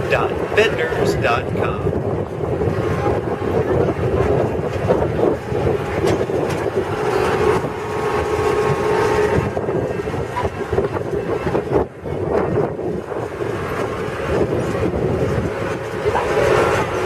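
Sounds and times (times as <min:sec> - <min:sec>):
ride rattling: 0:00.0 - 0:17.0
truck engine rumbling: 0:00.0 - 0:17.0.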